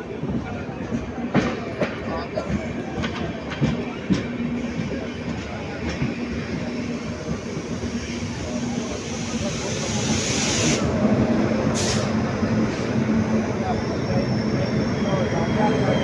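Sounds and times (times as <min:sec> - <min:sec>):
train rumble and hum: 0:00.0 - 0:16.0
hiss: 0:08.7 - 0:10.9, 0:11.7 - 0:13.0.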